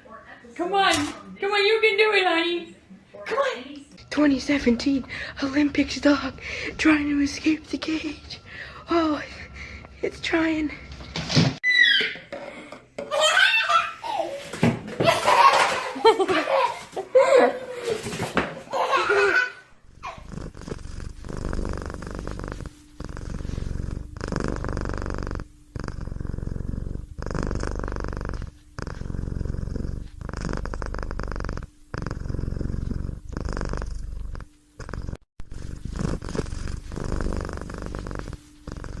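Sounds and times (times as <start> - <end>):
purring: 19.8 - 39.0.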